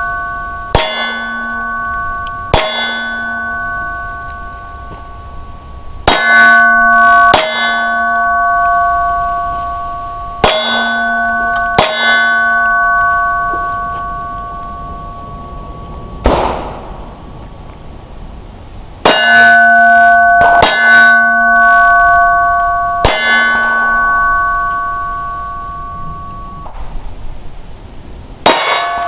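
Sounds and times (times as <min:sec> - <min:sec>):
steel target ringing: 0:00.0 - 0:17.3, 0:19.0 - 0:27.1, 0:28.4 - 0:29.0
pistol shots: 0:16.2 - 0:17.0.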